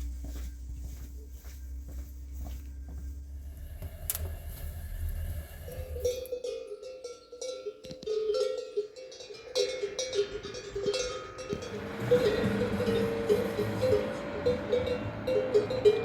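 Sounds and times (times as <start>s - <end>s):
animal bells clanking: 6.0s - 16.0s.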